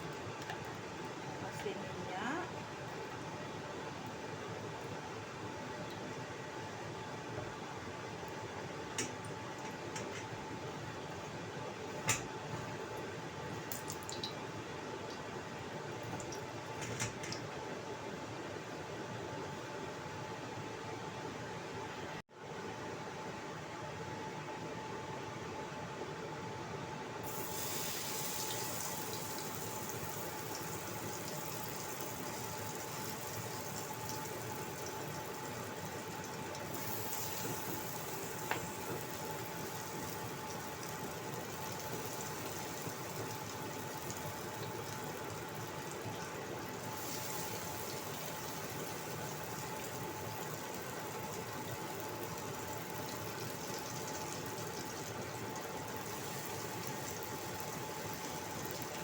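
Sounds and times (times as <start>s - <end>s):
faint steady hum: 0.0s - 59.0s
oil sizzling in a wok: 27.2s - 59.0s.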